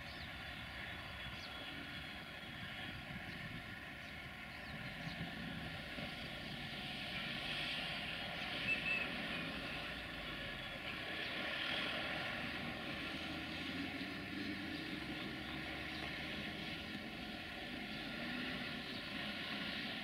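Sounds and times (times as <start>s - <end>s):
distant train rumbling: 0.0s - 20.0s.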